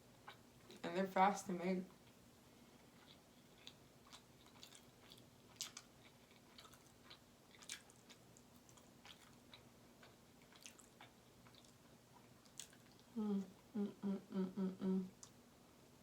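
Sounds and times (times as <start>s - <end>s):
person chewing food: 1.9s - 13.7s.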